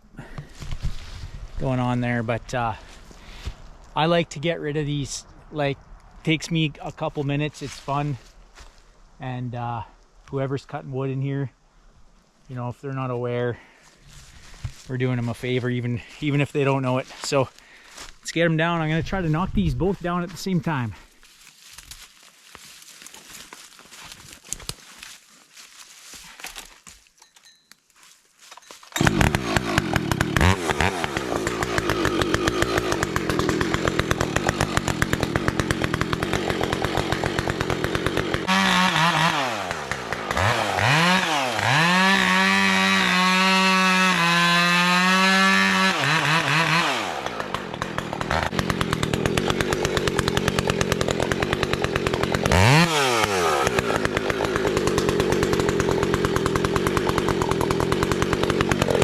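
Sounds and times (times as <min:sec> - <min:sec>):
chainsaw cutting wood: 0:28.9 - 0:59.0
chainsaw running: 0:28.9 - 0:59.0.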